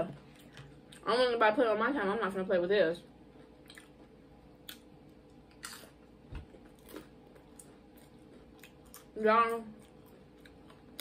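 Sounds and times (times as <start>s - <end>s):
quiet chewing: 3.4s - 11.0s.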